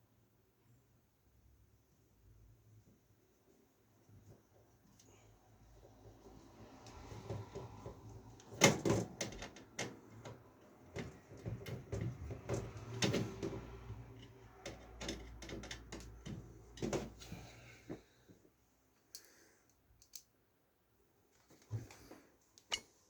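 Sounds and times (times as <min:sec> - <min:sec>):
computer parts knocking and rattling: 0:07.2 - 0:17.2.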